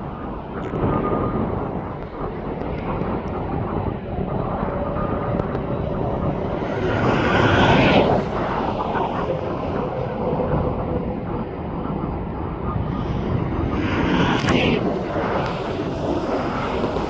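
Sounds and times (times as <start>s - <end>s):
jet airliner engines roaring: 0.0s - 17.0s.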